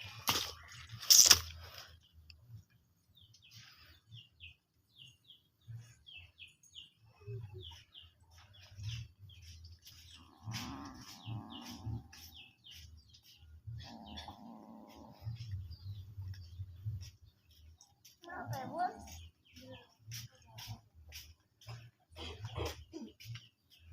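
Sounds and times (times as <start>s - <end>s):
bird chirping: 0.0s - 23.9s
lower animal cry: 10.2s - 12.1s, 13.8s - 15.4s.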